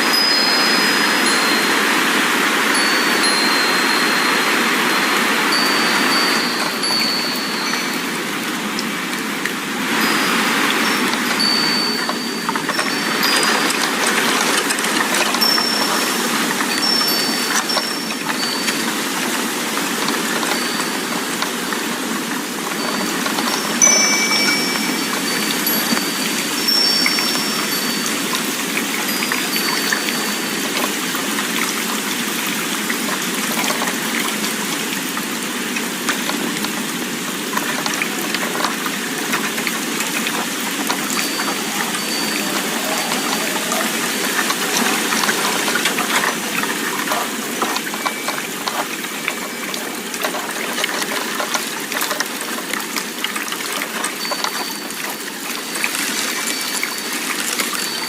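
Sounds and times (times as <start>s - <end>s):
high wind-chime tones: 0.0s - 34.7s, 35.4s - 58.0s
steady rushing noise with crackle: 0.0s - 58.0s.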